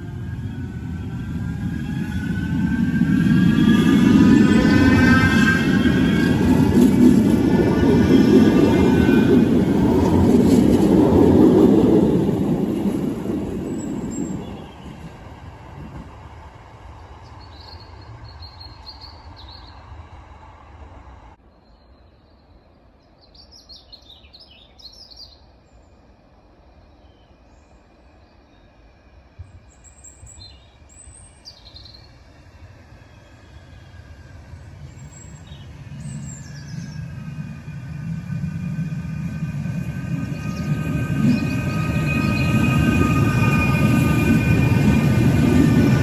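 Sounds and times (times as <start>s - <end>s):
tram motor whine: 0.0s - 16.1s, 35.6s - 46.0s
tram rumbling: 0.0s - 21.4s, 31.4s - 46.0s.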